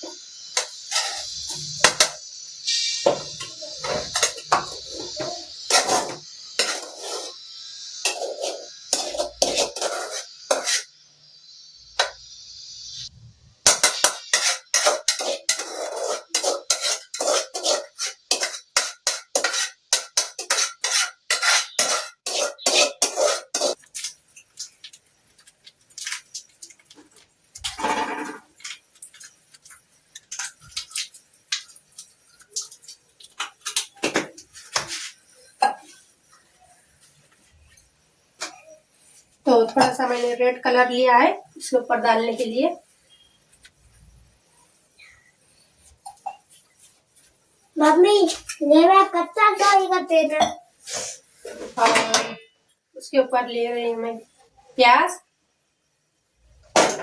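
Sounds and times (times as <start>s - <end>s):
steady hiss: 0.0s - 52.9s
metal spoon scraping rice pot: 3.4s - 4.8s, 5.7s - 7.4s, 8.0s - 10.9s, 13.7s - 23.8s.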